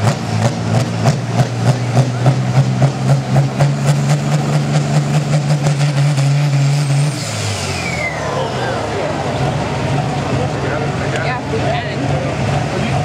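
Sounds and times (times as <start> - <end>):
tractor engine idling: 7.5 - 13.0.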